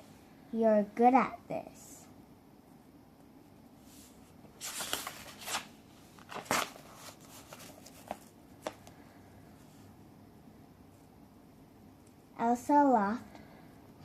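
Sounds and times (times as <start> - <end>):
book pages rustling: 4.0 - 9.0.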